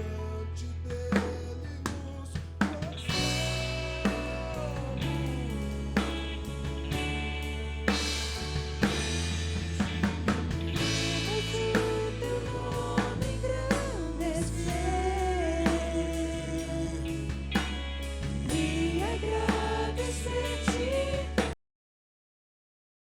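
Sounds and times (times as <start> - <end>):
bass guitar: 0.0 - 21.6
drum kit: 0.9 - 21.6
people singing: 2.9 - 9.2, 9.8 - 21.6
worship band playing: 3.1 - 21.5.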